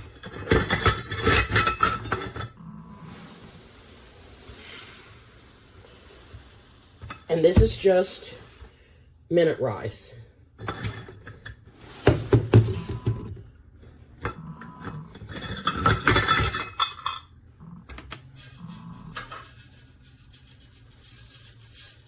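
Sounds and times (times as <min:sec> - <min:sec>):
dry rice pouring into dish: 0:02.9 - 0:08.9.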